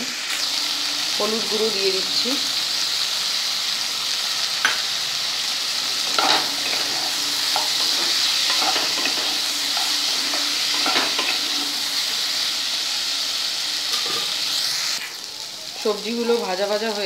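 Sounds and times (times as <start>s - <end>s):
vegetables sizzling in oil: 0.0s - 17.0s
spatula scraping a pan: 6.0s - 11.8s, 13.9s - 14.4s.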